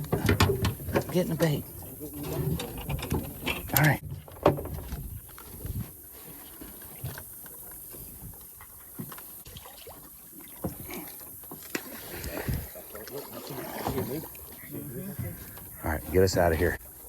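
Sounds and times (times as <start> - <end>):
gear knocking and clattering on boat: 0.0 - 5.9.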